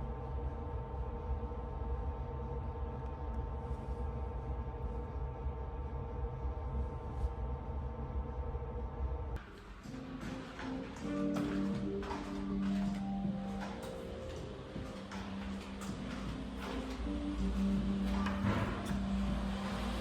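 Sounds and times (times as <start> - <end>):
gong-like drone: 9.9 - 20.0.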